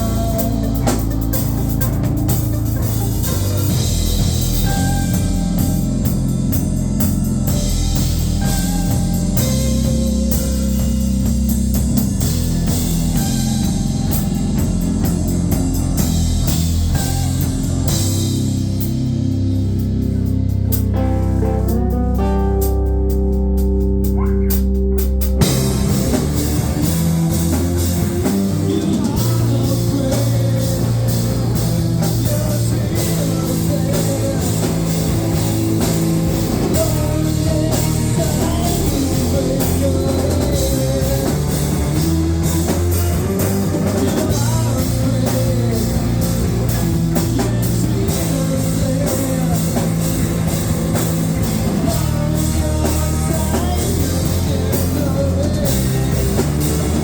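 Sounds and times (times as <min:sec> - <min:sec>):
drum kit beat: 0:00.0 - 0:57.0
guitar and bass notes: 0:00.0 - 0:57.0
rock band playing: 0:00.0 - 0:57.0.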